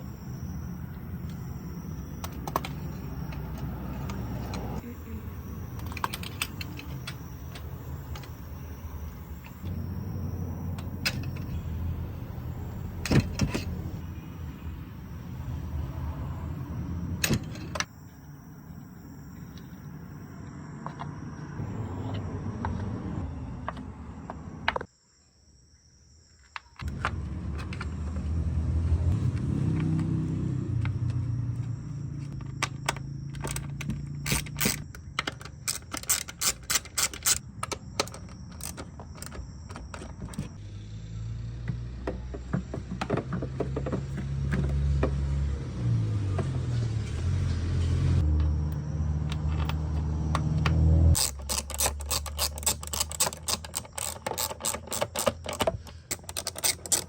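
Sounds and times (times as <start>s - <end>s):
metal hand tools clicking: 33.4s - 38.8s, 51.2s - 57.0s.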